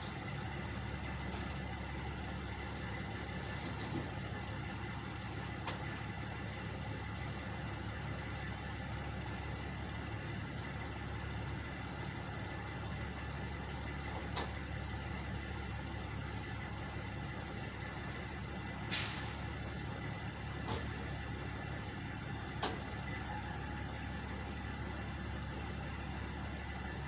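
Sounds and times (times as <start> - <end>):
truck engines idling: 0.0 - 27.0
air brake hisses: 18.9 - 19.5.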